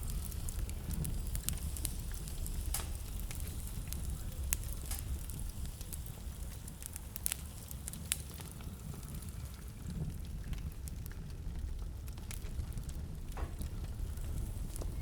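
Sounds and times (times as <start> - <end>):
wood fire crackling: 0.0 - 15.0
sharp pops and snaps: 0.1 - 8.6.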